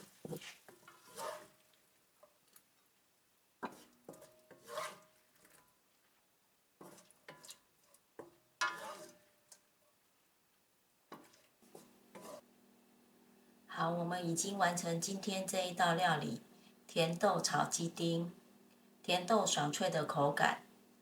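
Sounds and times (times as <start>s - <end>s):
spatula scraping a pan: 0.0s - 1.8s, 3.6s - 5.8s, 6.8s - 9.6s, 11.1s - 12.5s.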